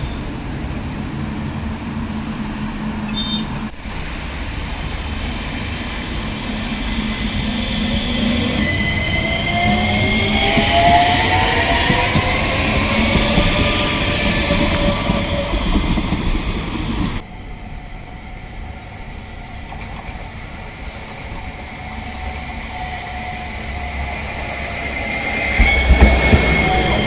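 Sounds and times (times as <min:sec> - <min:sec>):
tram rumbling on rails: 0:00.0 - 0:27.0
high squeal: 0:03.0 - 0:03.7, 0:04.4 - 0:27.0.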